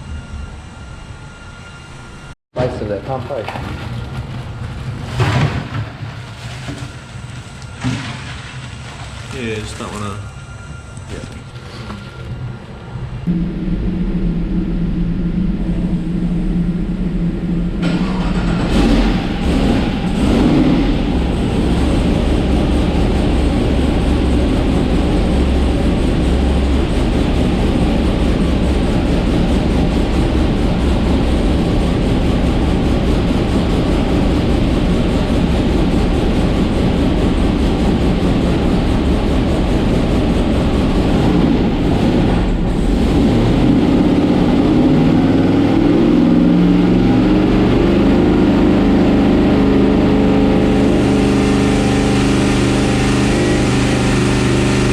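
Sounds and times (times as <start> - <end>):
drag car engine on dyno: 13.2 - 54.9.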